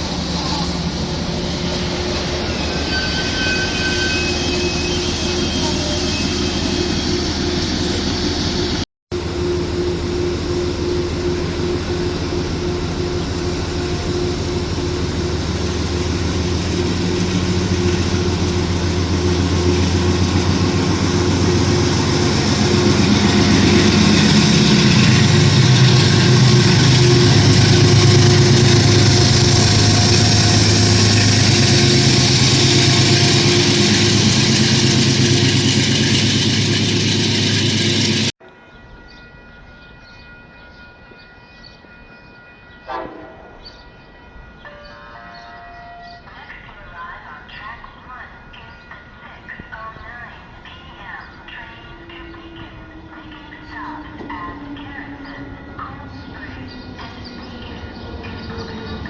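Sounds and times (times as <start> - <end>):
train rolling noise: 0.0 - 59.0
diesel engine running: 9.2 - 38.3.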